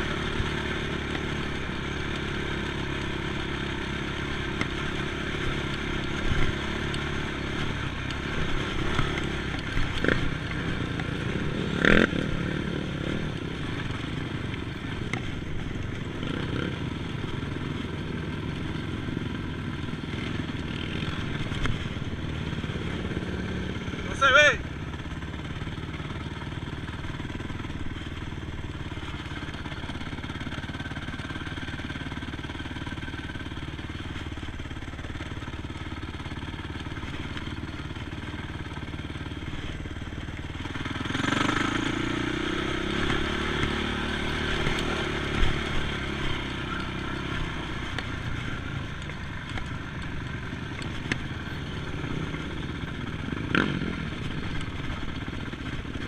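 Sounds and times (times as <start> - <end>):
engine revving: 0.0 - 14.1, 16.1 - 17.1, 20.1 - 24.6, 40.7 - 54.8.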